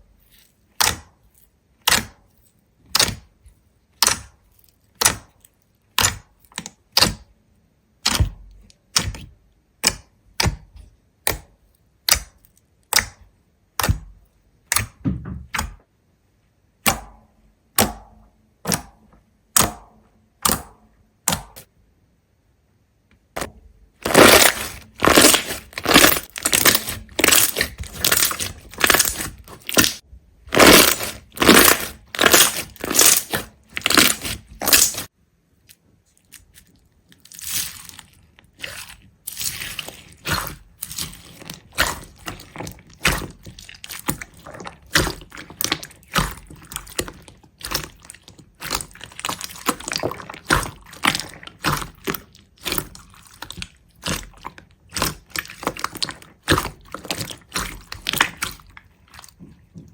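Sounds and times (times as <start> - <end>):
sharp cracks: 24.0 - 35.1
brittle crunching: 24.0 - 59.9.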